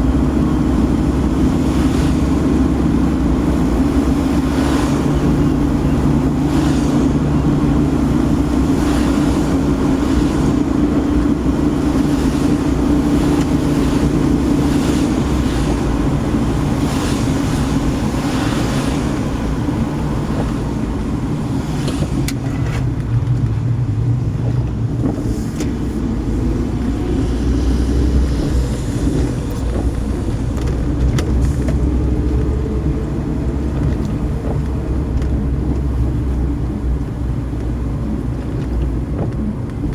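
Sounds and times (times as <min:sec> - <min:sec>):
car engine and road hum: 0:00.0 - 0:39.9.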